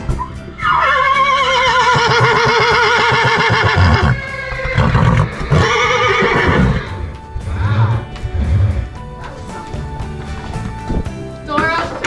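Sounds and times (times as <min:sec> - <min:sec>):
horse whinnying: 0:00.2 - 0:08.1.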